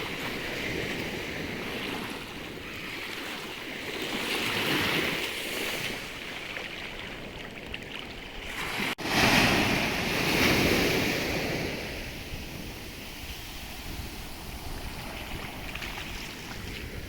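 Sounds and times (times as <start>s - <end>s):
waves washing on shore: 0.0s - 17.0s.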